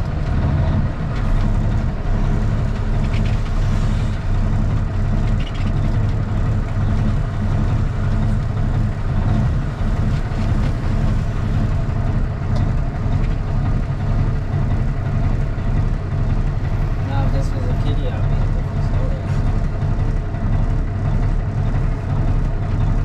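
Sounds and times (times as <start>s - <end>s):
diesel truck engine droning: 0.0s - 23.0s.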